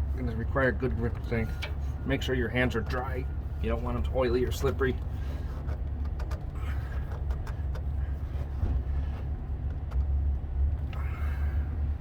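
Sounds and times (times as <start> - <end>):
faint clicks and rubbing: 4.5 - 10.2.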